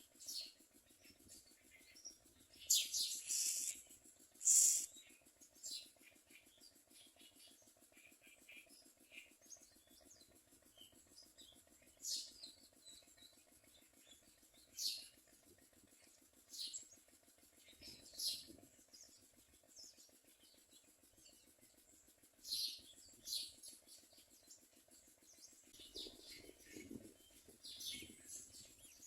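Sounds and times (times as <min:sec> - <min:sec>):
faint steady hum: 0:02.6 - 0:05.0
mynas chirping: 0:02.7 - 0:03.8, 0:04.4 - 0:04.9.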